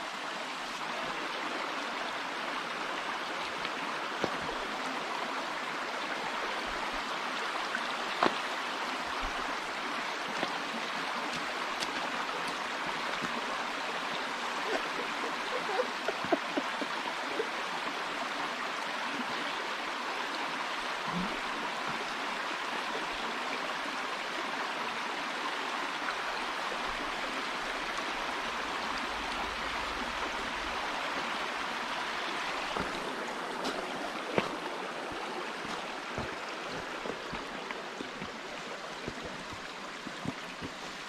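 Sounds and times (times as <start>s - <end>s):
stream babbling over rocks: 0.0s - 41.0s.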